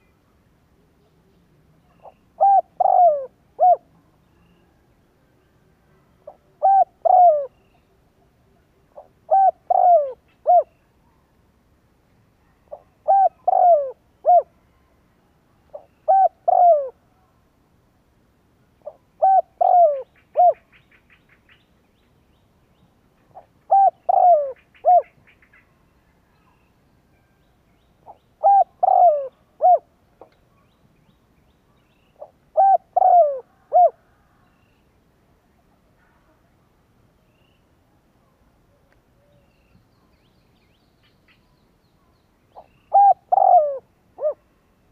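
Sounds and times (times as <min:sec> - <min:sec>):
dove cooing: 0:02.0 - 0:03.9, 0:06.2 - 0:07.6, 0:08.9 - 0:10.7, 0:12.7 - 0:14.5, 0:15.7 - 0:17.0, 0:18.8 - 0:20.8, 0:23.3 - 0:25.3, 0:28.0 - 0:29.9, 0:32.2 - 0:34.4, 0:42.5 - 0:44.4.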